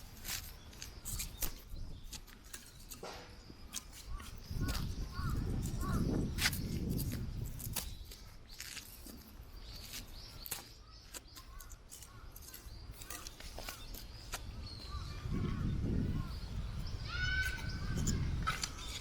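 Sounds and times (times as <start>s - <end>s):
wind rumble on microphone: 4.0s - 8.4s, 14.4s - 19.0s.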